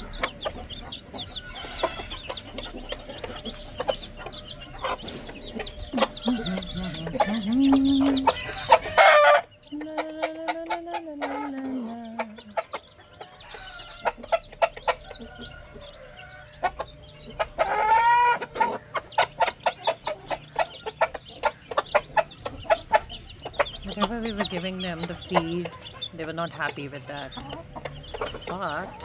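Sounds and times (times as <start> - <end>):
chicks clucking: 0.0 - 29.0
hen calling: 0.0 - 29.0.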